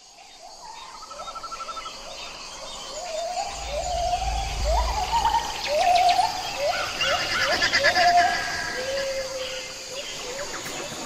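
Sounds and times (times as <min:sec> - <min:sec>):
faint high chirping: 0:00.8 - 0:08.0
low rumble: 0:03.2 - 0:06.8.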